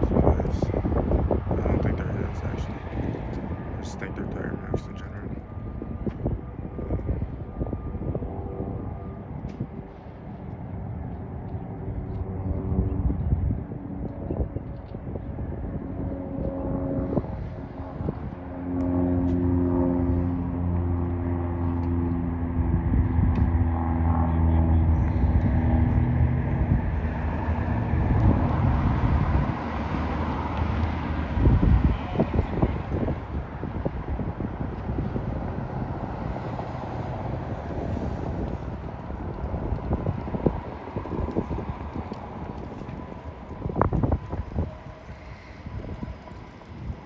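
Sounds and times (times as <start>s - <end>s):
low outdoor rumble: 0.0s - 47.0s
road and traffic noise: 0.0s - 47.0s
vehicle engine humming: 23.4s - 33.6s, 36.0s - 47.0s.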